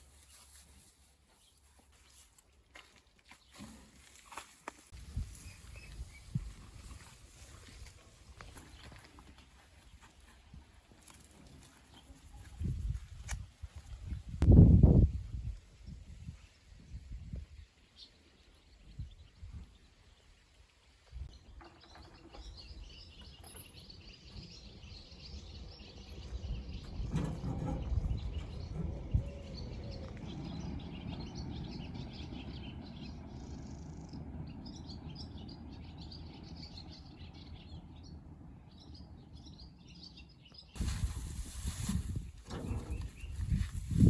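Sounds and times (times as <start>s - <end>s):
small birds chirping: 0.1s - 14.4s, 17.5s - 44.0s
low rumbling background: 22.3s - 44.0s.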